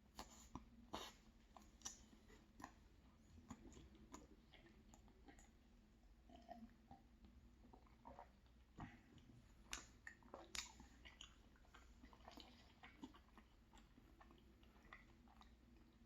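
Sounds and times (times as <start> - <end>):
person chewing wet mouth clicks: 0.1 - 2.8, 7.8 - 15.9.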